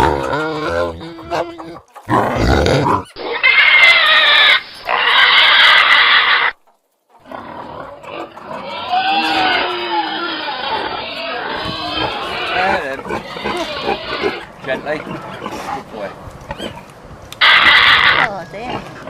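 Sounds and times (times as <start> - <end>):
pigs grunting: 0.0 - 6.6, 7.2 - 19.0
pigs squealing: 0.0 - 6.6, 7.2 - 19.0.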